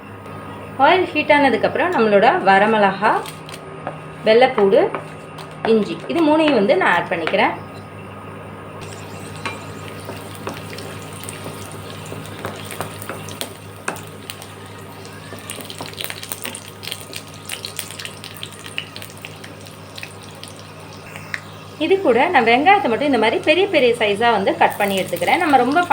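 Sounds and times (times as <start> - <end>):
low steady hum: 0.0 - 15.2
food sizzling in hot oil: 8.8 - 25.9.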